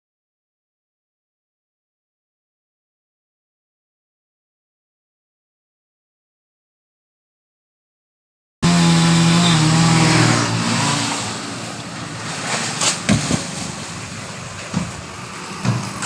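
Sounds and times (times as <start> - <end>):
chainsaw engine running: 8.6 - 13.9
sharp knocks: 12.8 - 13.8.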